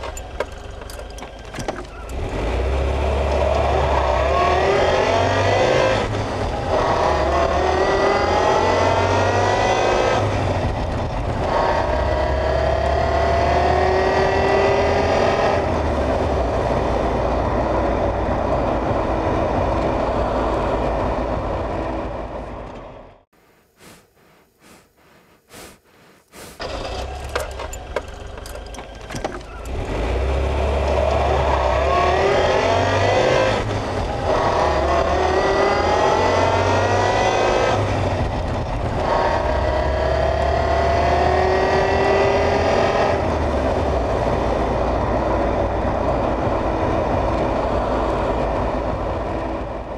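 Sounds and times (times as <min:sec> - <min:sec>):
car engine accelerating: 0:00.0 - 0:23.2, 0:26.5 - 0:49.9.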